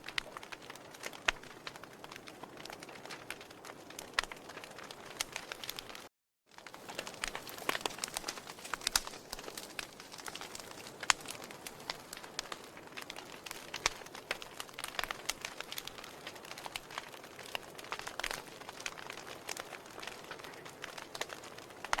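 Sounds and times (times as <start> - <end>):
wood fire snapping and popping: 0.0 - 22.0
soft hiss of flames: 6.6 - 22.0.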